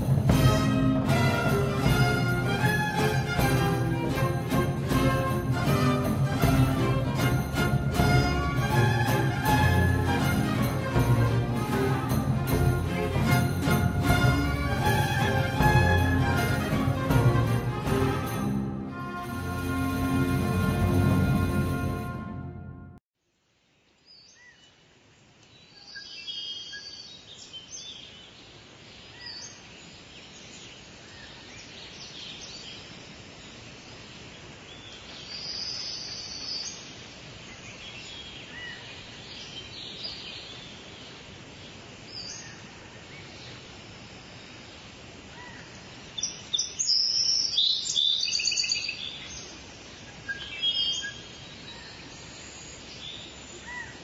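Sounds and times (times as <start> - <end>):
steady background hiss: 23.2 - 54.0
wild birds singing: 25.5 - 44.7, 45.3 - 54.0.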